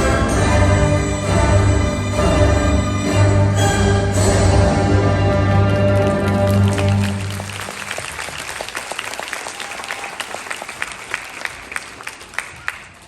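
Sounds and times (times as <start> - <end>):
ballet music: 0.0 - 7.9
audience applauding: 5.5 - 13.0.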